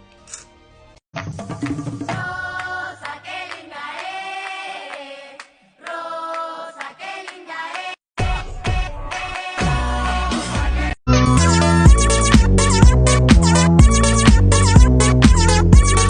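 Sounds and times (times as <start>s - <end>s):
choir-like sung melody: 2.0s - 11.0s
music with heavy bass: 9.6s - 16.0s.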